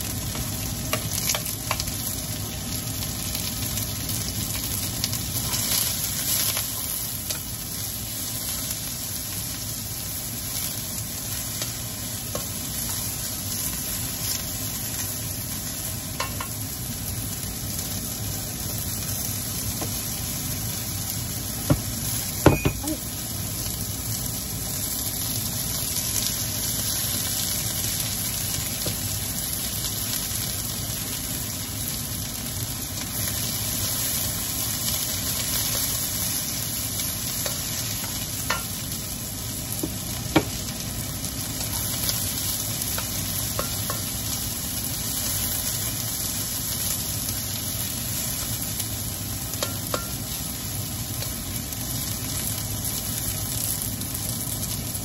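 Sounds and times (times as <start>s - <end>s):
onions sizzling in a wok: 0.0s - 55.0s.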